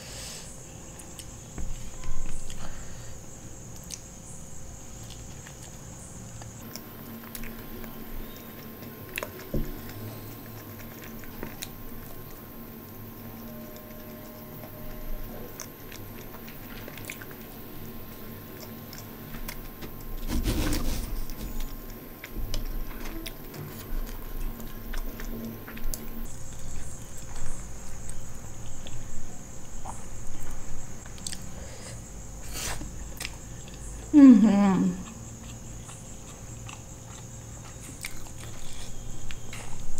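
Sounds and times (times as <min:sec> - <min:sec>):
crunching rustle: 0:03.7 - 0:31.5
wet chewing and mouth clicks: 0:05.0 - 0:29.0, 0:29.8 - 0:31.5, 0:35.0 - 0:39.9.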